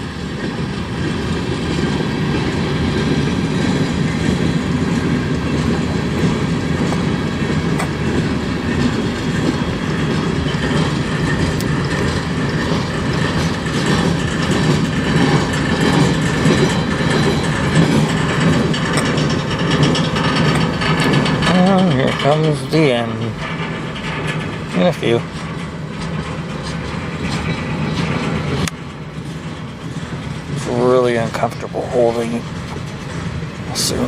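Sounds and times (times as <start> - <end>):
freight train wheels rumbling: 0.0 - 34.0
wheels clicking over rail joints: 0.0 - 34.0.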